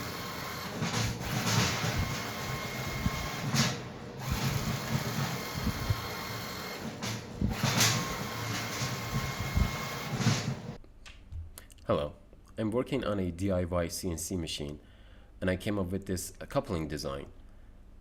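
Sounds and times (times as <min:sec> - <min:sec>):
mechanical rattle: 0:00.0 - 0:10.8
stepper motor whining: 0:00.0 - 0:10.8.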